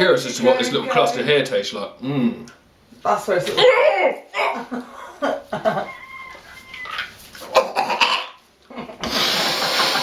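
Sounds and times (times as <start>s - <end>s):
poultry calling: 5.8s - 8.2s
loud hiss of noise: 9.0s - 10.0s.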